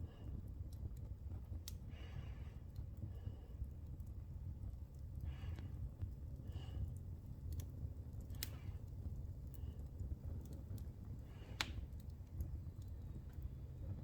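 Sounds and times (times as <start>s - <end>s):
fire crackling: 0.0s - 14.0s
sharp pops of fire: 7.4s - 14.0s.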